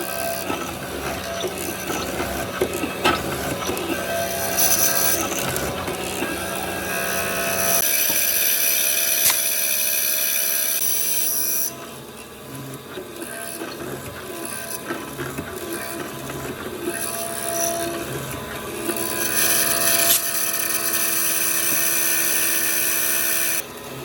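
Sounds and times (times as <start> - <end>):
power tool high whine: 0.0 - 24.0.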